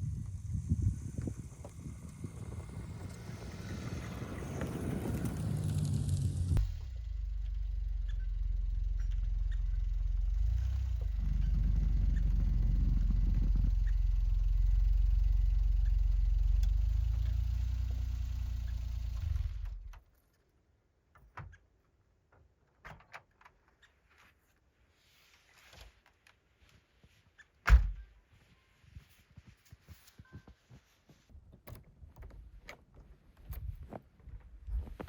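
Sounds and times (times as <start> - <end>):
truck engine running: 0.0 - 19.9.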